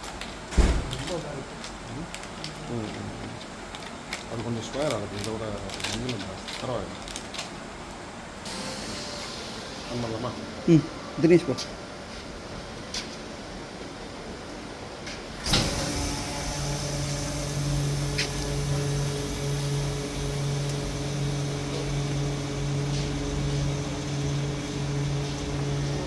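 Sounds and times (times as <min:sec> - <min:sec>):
sharp thump: 0:00.6 - 0:00.9
vacuum pump humming: 0:15.4 - 0:26.0.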